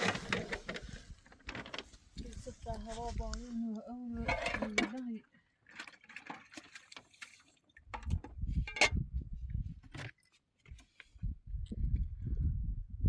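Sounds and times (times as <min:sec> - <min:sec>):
wind buffeting microphone: 0:07.9 - 0:09.9, 0:11.1 - 0:13.0.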